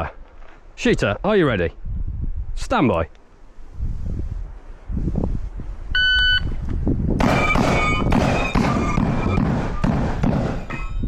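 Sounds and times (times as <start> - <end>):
shotgun shots: 7.2 - 10.7
steel targets ringing: 10.6 - 11.0.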